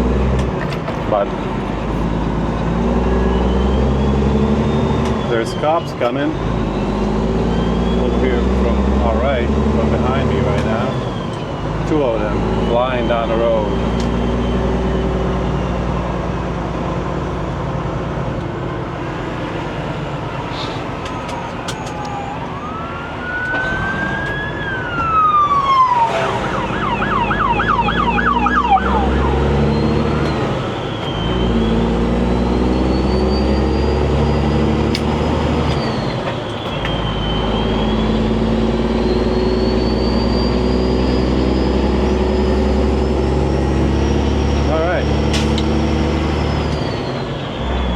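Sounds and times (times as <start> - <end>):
diesel engine drone: 0.0 - 47.9
police siren wailing: 1.1 - 47.9
police siren yelp: 1.4 - 16.1, 20.0 - 45.2.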